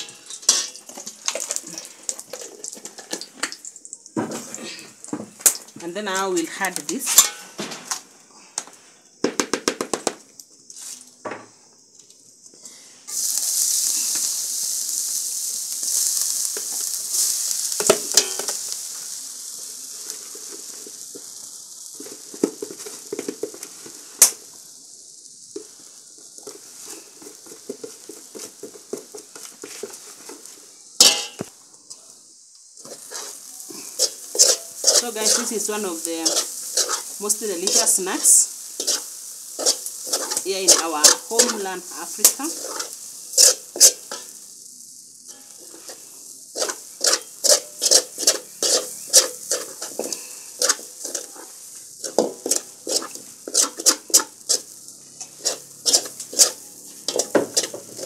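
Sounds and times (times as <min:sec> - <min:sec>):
spoon scraping pan: 0:00.0 - 0:03.6, 0:05.8 - 0:07.6, 0:17.8 - 0:18.7, 0:26.4 - 0:31.5, 0:32.8 - 0:44.4, 0:45.3 - 0:58.0
dough sizzling in hot fat: 0:00.0 - 0:58.0
metal spoon clinking on wok: 0:31.0 - 0:31.5.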